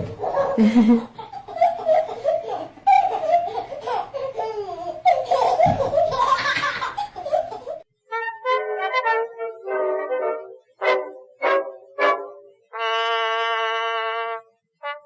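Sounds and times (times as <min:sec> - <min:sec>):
baby laughing: 0:00.0 - 0:07.8.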